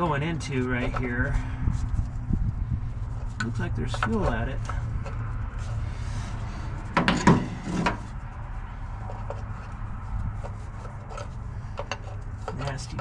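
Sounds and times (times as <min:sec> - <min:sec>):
steady low hum: 0:00.0 - 0:13.0
clunks and knocks: 0:06.9 - 0:08.1.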